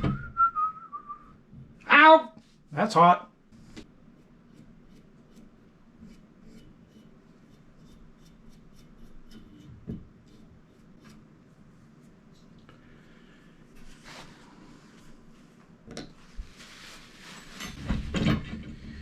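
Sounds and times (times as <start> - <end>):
dull low thump: 0.0 - 0.4
tools clicking and rubbing: 4.2 - 9.7.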